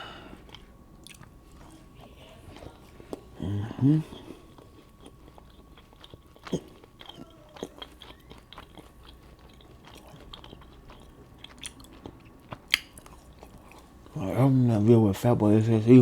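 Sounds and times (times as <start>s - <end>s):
person chewing food: 0.0s - 14.4s.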